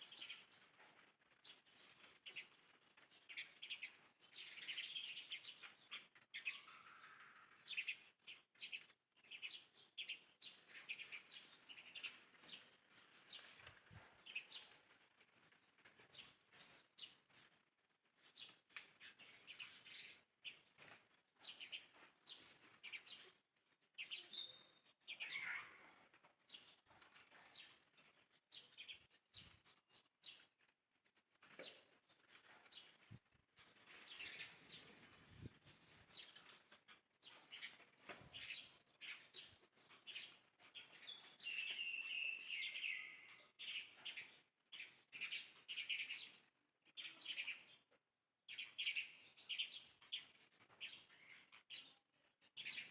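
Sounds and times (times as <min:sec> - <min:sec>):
small animals chirping and squeaking: 0:24.0 - 0:30.5.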